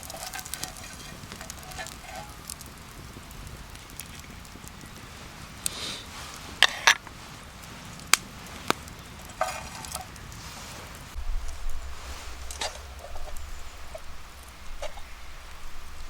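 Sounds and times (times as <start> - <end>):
utensil scraping pan: 0.0 - 2.6, 6.5 - 7.2, 9.2 - 10.8, 11.6 - 15.1
faint sizzle: 0.0 - 16.0
low rumbling: 0.0 - 16.0.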